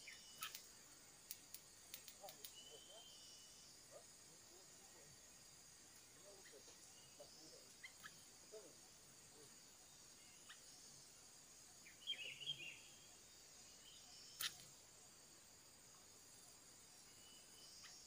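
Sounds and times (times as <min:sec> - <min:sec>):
small bird chirping: 0:00.0 - 0:15.1, 0:16.7 - 0:18.0
insects buzzing: 0:00.0 - 0:18.0
sharp click: 0:01.3 - 0:02.6.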